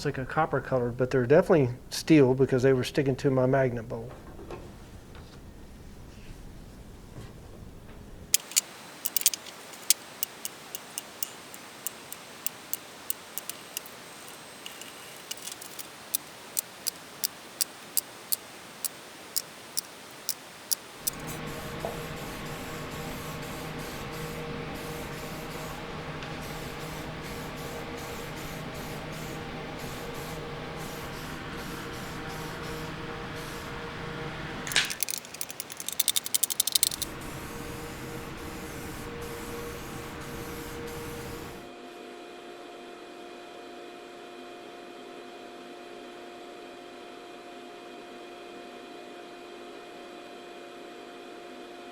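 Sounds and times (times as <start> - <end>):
motor humming: 8.4 - 21.4, 34.7 - 37.1
screws clicking on hard surface: 8.4 - 21.4, 34.7 - 37.1.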